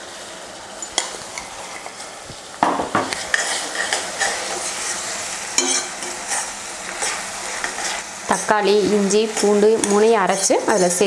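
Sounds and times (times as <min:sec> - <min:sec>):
paste sizzling in oil: 0:00.0 - 0:11.0
metal spatula scraping pan: 0:03.1 - 0:08.6, 0:09.4 - 0:11.0.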